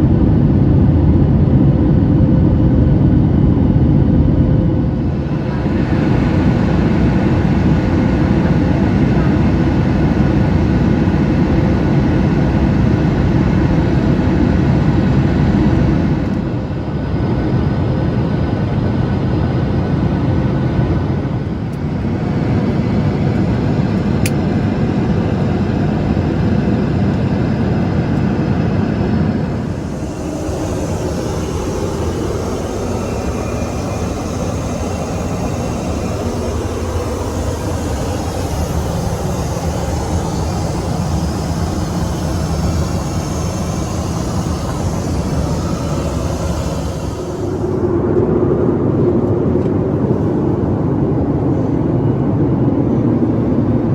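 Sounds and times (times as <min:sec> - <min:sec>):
jet engines droning: 0:00.0 - 0:53.9
air rushing around fuselage: 0:02.1 - 0:10.1, 0:29.0 - 0:53.9.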